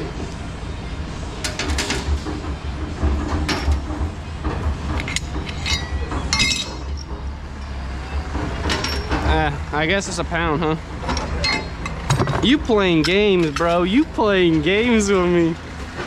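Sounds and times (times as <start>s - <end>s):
scrap metal clinking: 5.0s - 7.1s.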